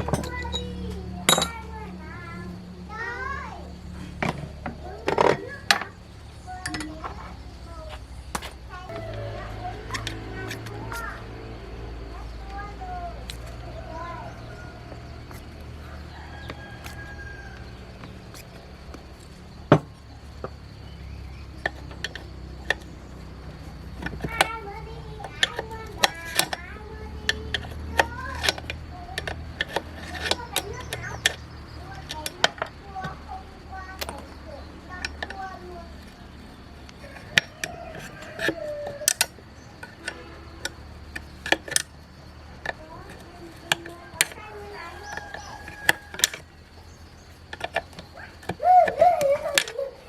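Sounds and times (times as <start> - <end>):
hand tools knocking and clicking: 0.0 - 1.6, 4.2 - 7.3, 25.2 - 33.3, 36.8 - 46.5, 47.2 - 49.8
metal tools clinking: 0.0 - 1.7, 6.5 - 7.4.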